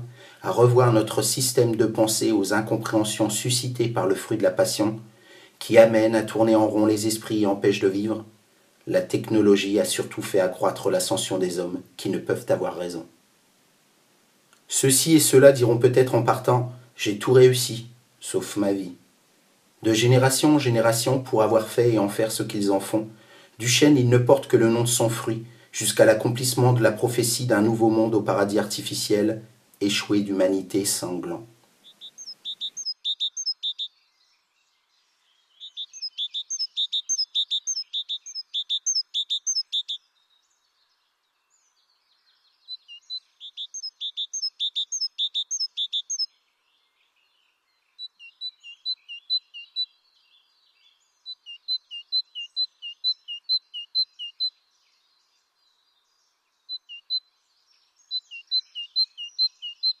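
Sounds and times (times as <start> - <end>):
small bird chirping: 30.4 - 60.0.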